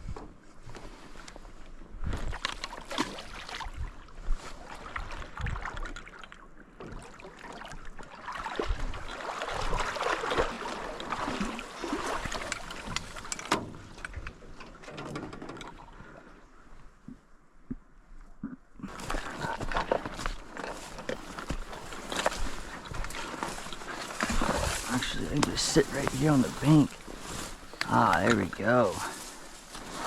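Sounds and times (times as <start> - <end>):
footsteps on riverbank: 0.0 - 6.0, 8.4 - 14.6, 18.8 - 30.0
rustling and scraping: 18.9 - 30.0.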